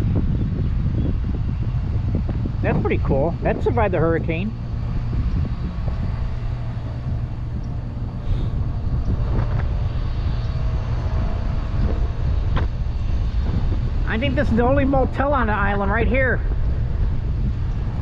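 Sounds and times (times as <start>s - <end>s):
bicycle road noise: 0.0s - 18.0s
wind rumble: 0.0s - 18.0s.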